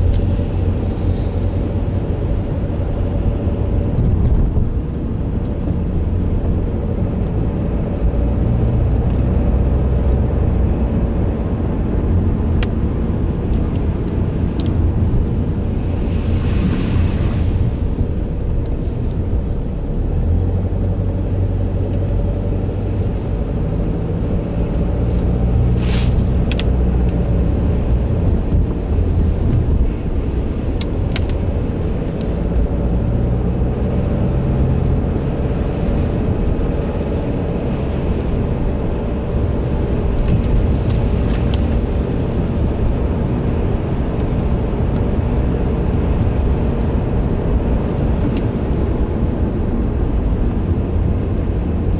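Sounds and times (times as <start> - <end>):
car engine and road rumble: 0.0 - 51.9.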